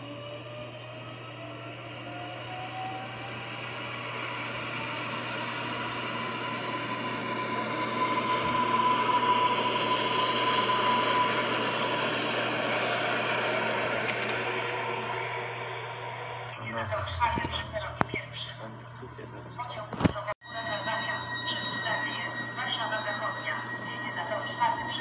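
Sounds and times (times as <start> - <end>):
electric train passing: 0.0 - 17.2.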